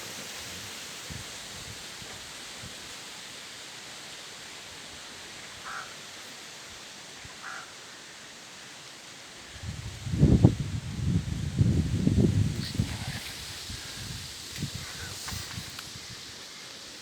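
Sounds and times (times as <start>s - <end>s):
crow cawing: 5.6s - 6.0s, 7.4s - 7.8s
strong wind blowing: 9.5s - 16.5s.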